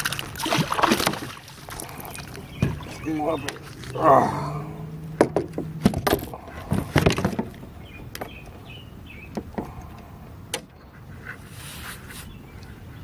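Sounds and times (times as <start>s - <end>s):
knocks and clicks in kayak: 0.0s - 4.0s, 5.0s - 8.5s.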